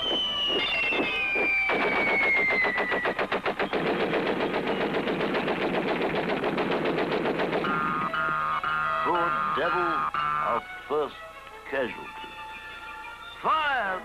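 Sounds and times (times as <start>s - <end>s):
falling whistle: 0.0s - 5.0s
cartoon machine-gun fire: 0.0s - 8.8s.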